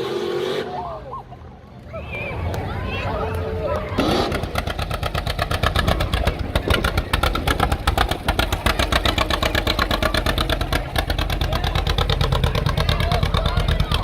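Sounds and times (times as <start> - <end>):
car engine exhaust beat: 4.0 - 14.0.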